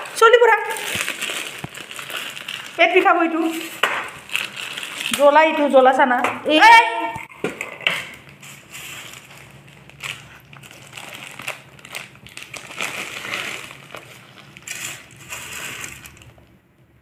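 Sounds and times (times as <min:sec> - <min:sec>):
crunching of fried food: 0:08.2 - 0:16.6.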